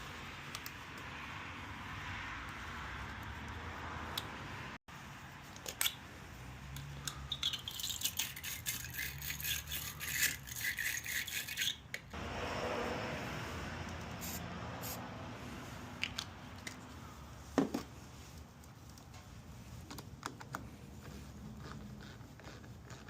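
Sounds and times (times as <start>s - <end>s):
metallic clicking and rattling of tools: 6.8s - 12.2s.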